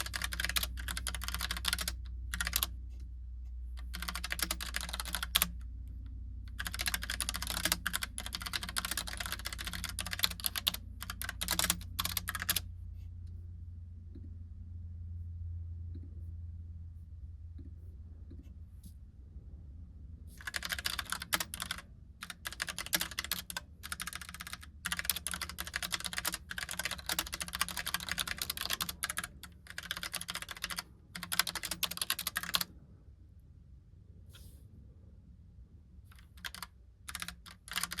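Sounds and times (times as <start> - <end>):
mechanical keyboard typing: 0.0 - 2.7, 3.8 - 5.6, 6.5 - 12.6, 20.4 - 32.7, 36.1 - 38.0
low steady hum: 0.0 - 38.0.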